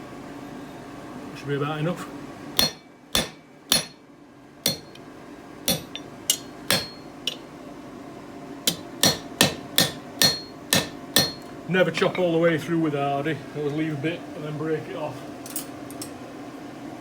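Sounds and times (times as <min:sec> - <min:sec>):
hammer striking hot steel: 0:02.6 - 0:04.0, 0:04.6 - 0:05.0, 0:05.7 - 0:07.5, 0:08.7 - 0:11.5.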